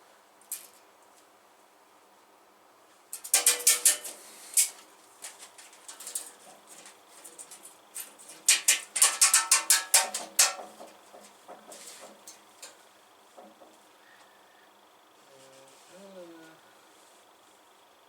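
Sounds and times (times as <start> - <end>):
hard objects clicking and knocking: 5.3 - 12.8.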